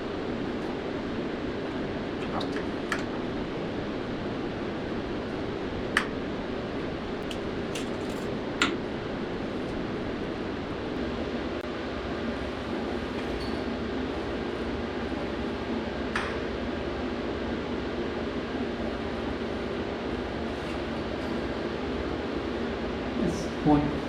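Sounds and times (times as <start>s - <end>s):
rushing shop background noise: 0.0s - 11.6s
metal parts clicking and tapping: 7.2s - 8.8s.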